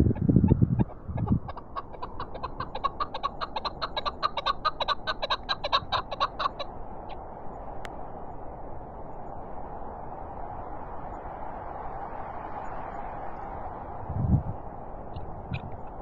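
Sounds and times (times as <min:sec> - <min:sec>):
partridge clucking calls: 0:00.0 - 0:06.7, 0:15.1 - 0:16.0
wind noise: 0:00.0 - 0:16.0
wind rumbling on microphone: 0:00.0 - 0:16.0.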